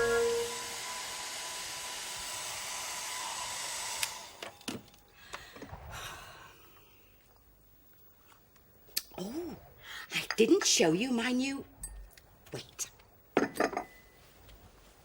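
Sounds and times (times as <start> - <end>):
hair dryer blowing: 0.0 - 4.4.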